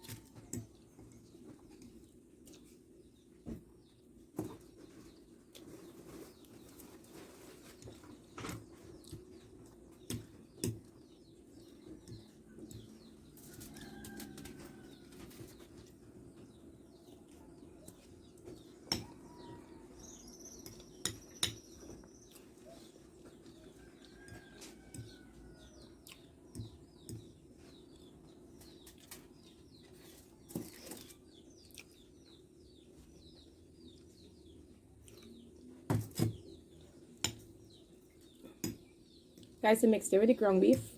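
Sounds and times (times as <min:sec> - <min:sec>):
chewing: 0:25.9 - 0:26.3, 0:30.6 - 0:32.0.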